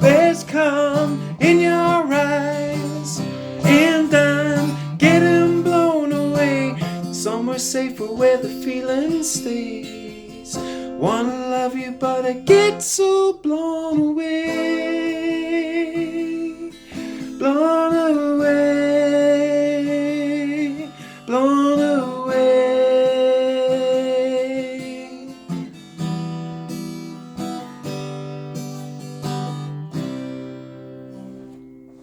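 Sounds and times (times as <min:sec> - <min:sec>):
person singing long notes: 0:00.0 - 0:25.6
guitar strumming chords: 0:00.0 - 0:32.0.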